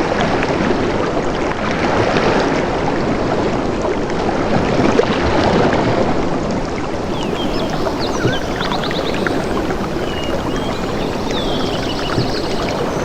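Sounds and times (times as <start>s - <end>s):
flowing water rushing: 7.0s - 13.0s.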